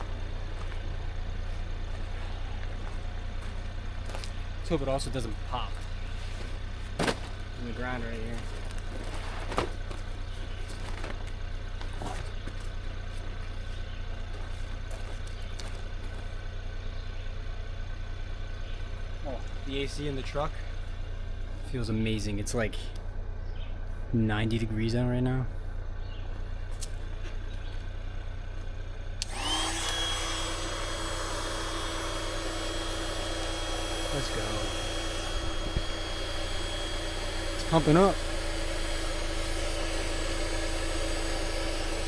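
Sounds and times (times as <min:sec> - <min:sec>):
electric air pump running: 0:00.0 - 0:16.5, 0:29.2 - 0:42.0
steady low hum: 0:00.0 - 0:42.0
truck engine idling: 0:00.0 - 0:42.0
air pump motor whining: 0:29.2 - 0:42.0.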